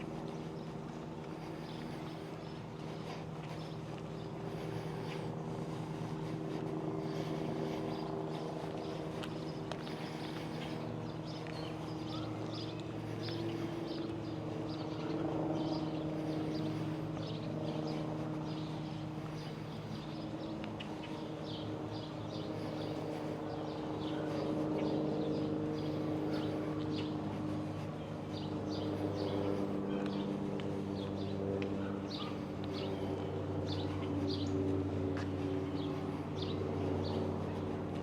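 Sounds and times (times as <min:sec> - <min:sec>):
birds chirping: 0:00.0 - 0:38.0
low hum of held tones: 0:00.0 - 0:38.0.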